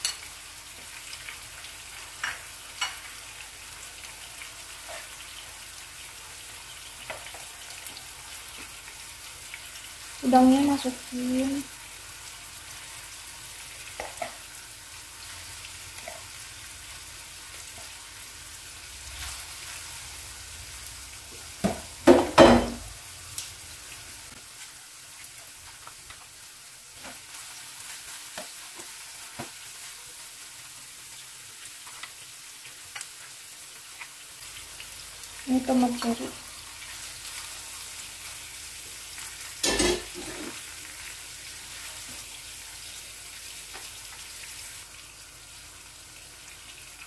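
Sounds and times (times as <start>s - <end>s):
shrimp sizzling in a pan: 0.0s - 47.0s
tongs clattering in pan: 2.2s - 3.1s, 39.6s - 40.6s.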